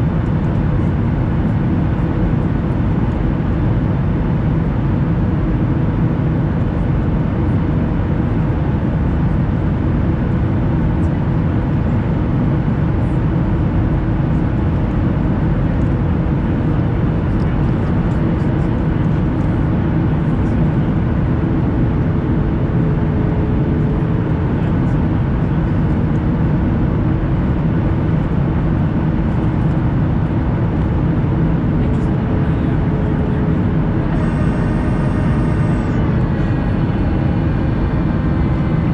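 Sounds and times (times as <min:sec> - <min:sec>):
airliner cabin engine rush: 0:00.0 - 0:38.9
faint steady hum: 0:16.9 - 0:38.9.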